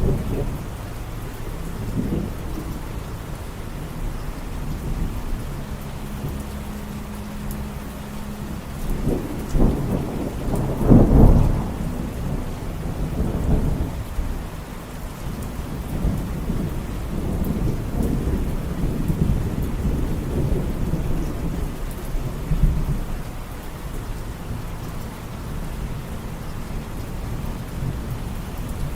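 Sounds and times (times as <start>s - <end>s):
steady rain: 0.0s - 28.9s
thunder rumbling: 0.0s - 28.9s.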